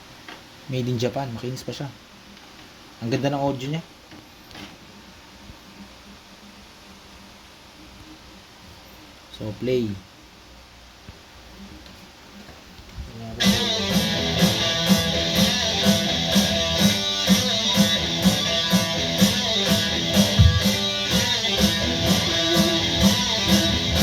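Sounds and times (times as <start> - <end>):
guitar-led music with steady beat: 13.4 - 24.0.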